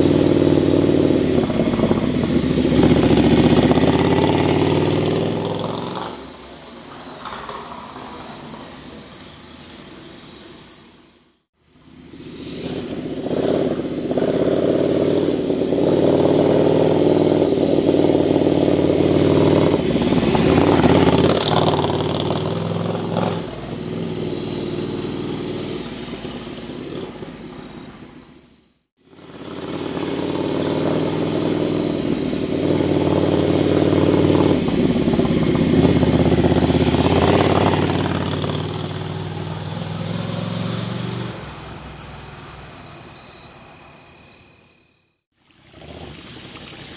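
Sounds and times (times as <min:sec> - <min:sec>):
motorcycle engine running: 0:00.0 - 0:06.6, 0:11.8 - 0:27.4, 0:29.0 - 0:42.5.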